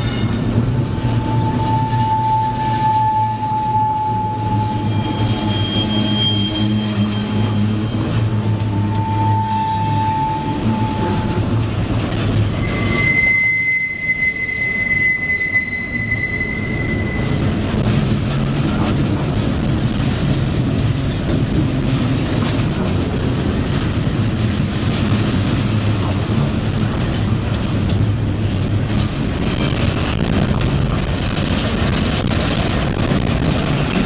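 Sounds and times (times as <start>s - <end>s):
high wheel squeal: 0.0s - 17.8s
freight train wheels rumbling: 0.0s - 34.0s.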